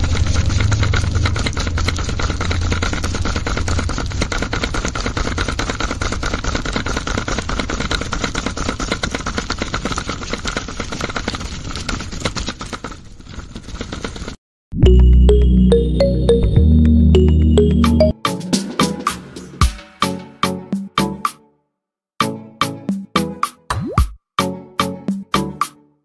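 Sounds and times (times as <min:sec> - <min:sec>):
toy motor and gears clattering: 0:00.0 - 0:14.4.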